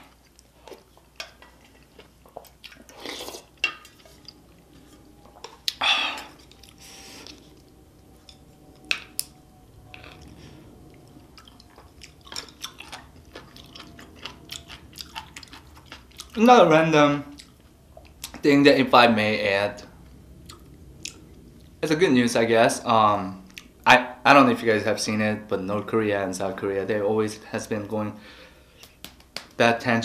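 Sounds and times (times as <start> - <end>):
close chewing: 0.0 - 7.7, 9.9 - 16.4, 17.2 - 18.5
crunchy chewing clicks: 10.0 - 16.4, 17.3 - 18.5.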